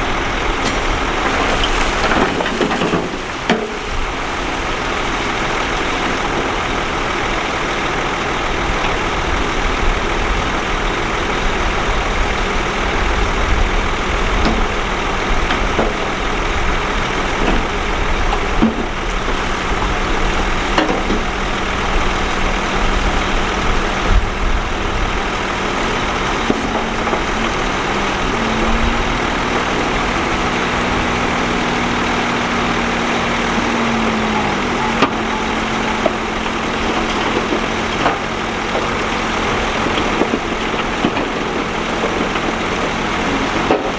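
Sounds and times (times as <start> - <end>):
heavy machinery diesel engine running: 0.0 - 43.9
knocks and clanks: 0.6 - 6.4, 18.3 - 31.8.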